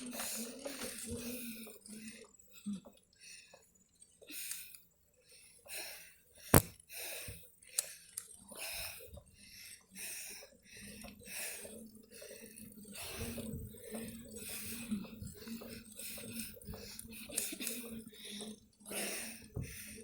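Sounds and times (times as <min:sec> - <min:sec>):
sharp click: 0:06.5 - 0:06.7.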